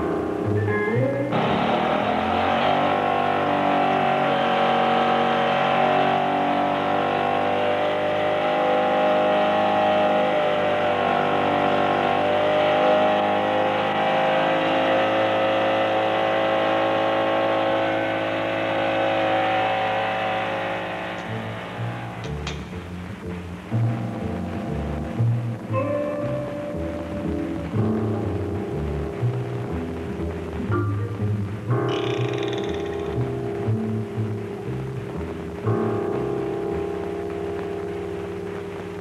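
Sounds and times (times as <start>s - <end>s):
engine revving with whine: 1.3s - 22.6s.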